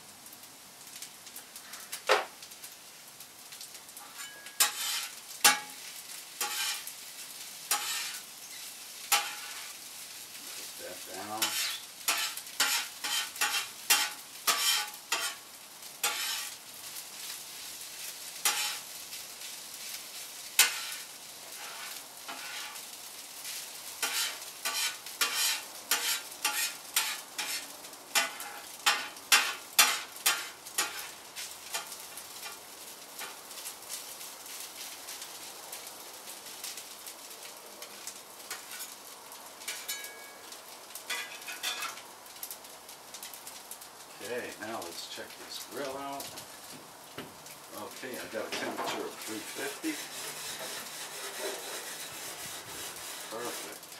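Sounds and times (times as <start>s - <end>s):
rice sizzling in a pan: 0.0s - 53.9s
utensil scraping a pan: 4.0s - 5.8s, 6.4s - 6.9s, 7.7s - 8.3s, 9.1s - 9.8s, 11.2s - 15.4s, 16.0s - 16.6s, 18.4s - 18.9s, 20.6s - 22.9s, 24.0s - 32.6s, 41.1s - 42.0s, 48.2s - 53.9s.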